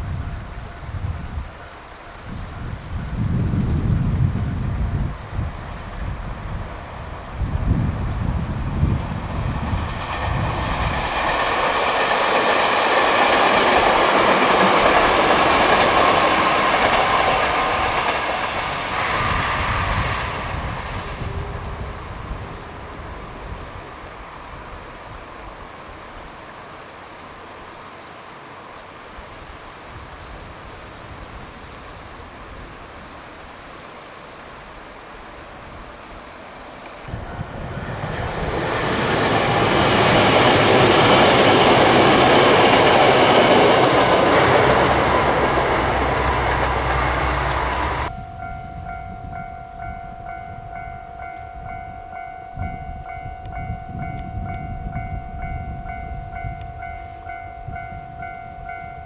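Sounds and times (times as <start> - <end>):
steady hiss: 0.0 - 38.1
train passing with wheel noise: 0.0 - 59.0
steady ringing tones: 43.3 - 59.0.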